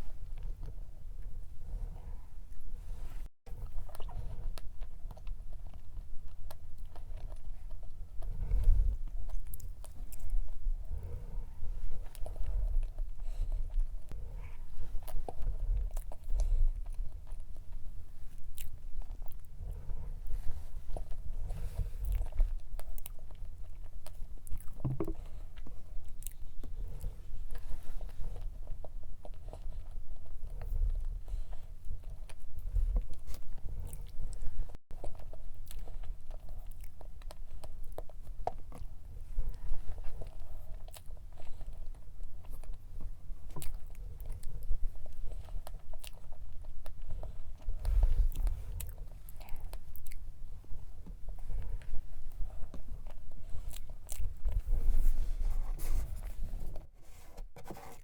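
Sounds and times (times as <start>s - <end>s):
chewing and biting cake: 0.0s - 58.0s
wet mouth clicks: 24.5s - 25.3s.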